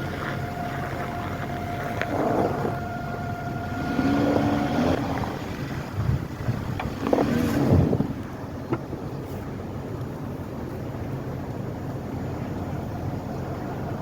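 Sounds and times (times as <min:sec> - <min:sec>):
short squeaks: 0:00.0 - 0:05.2
car engine idling: 0:00.0 - 0:14.0.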